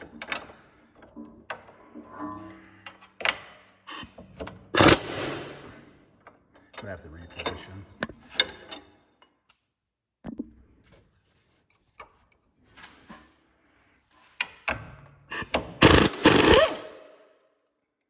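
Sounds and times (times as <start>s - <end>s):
loud rasping burst: 4.8s - 5.8s, 15.8s - 17.0s.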